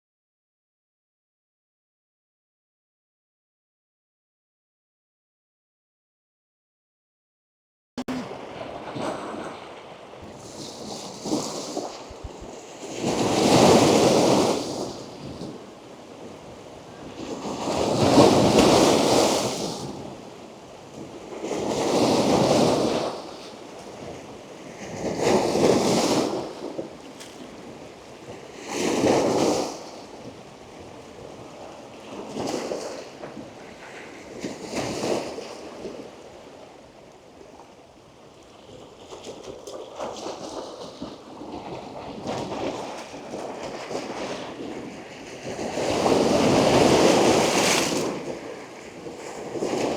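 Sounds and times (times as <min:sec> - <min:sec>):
waves crashing on rocks: 0:45.4 - 0:49.9.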